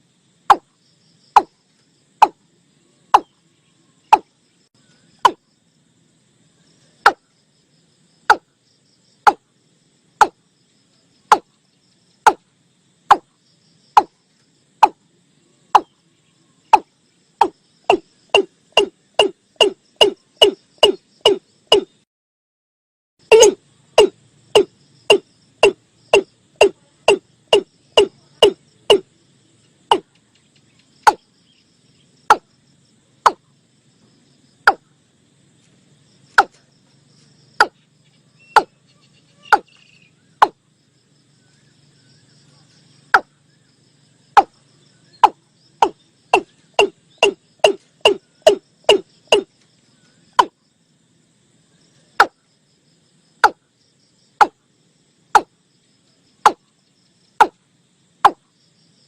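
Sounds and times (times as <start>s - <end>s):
sharp knocking bird calls: 1.4s - 1.6s, 2.2s - 2.4s, 3.1s - 3.4s, 4.1s - 4.3s, 5.2s - 5.4s, 7.0s - 7.3s, 8.3s - 8.5s, 9.3s - 9.5s, 10.2s - 10.4s, 11.3s - 11.6s, 12.2s - 12.4s, 15.7s - 16.0s, 16.7s - 22.0s, 23.3s - 29.1s, 29.9s - 31.3s, 32.3s - 32.5s, 33.2s - 33.5s, 37.6s - 37.8s, 38.4s - 40.6s, 43.1s - 43.4s, 44.3s - 49.6s, 50.3s - 50.6s, 53.4s - 53.6s, 54.4s - 54.6s, 56.4s - 56.7s, 57.4s - 57.6s.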